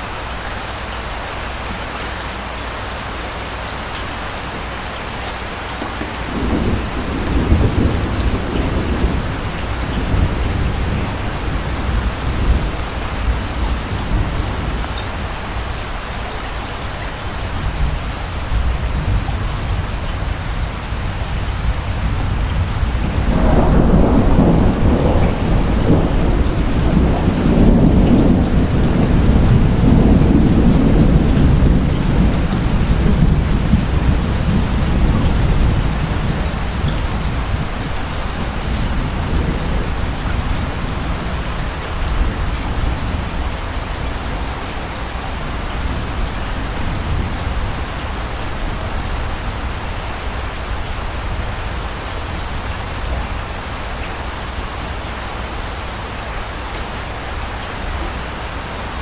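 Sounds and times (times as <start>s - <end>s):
steady rain: 0.0s - 59.0s
rolling thunder: 5.7s - 15.8s, 17.4s - 53.4s.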